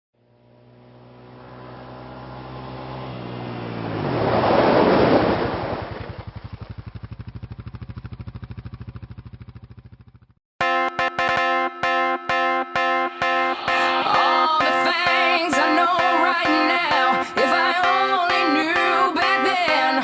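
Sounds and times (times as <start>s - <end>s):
vehicle engine passing by: 0.2s - 7.9s.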